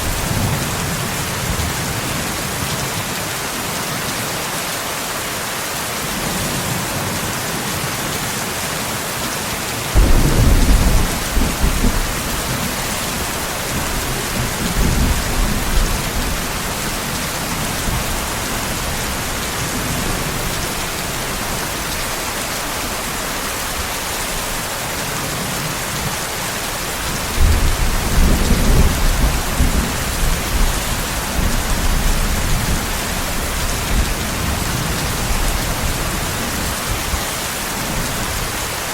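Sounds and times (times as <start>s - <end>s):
steady rain hiss: 0.0s - 38.9s
thunder rumbling: 9.9s - 21.7s, 27.2s - 36.8s.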